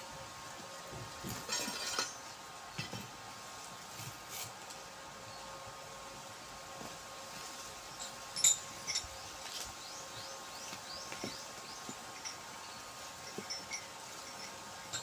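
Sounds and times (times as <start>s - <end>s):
light clinks and knocks: 1.0s - 3.2s, 7.9s - 10.0s, 10.6s - 15.0s.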